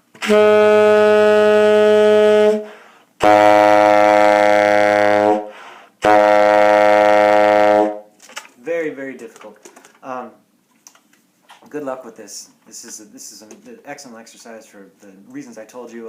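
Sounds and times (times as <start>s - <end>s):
tenor saxophone long low tones: 0.2s - 8.0s.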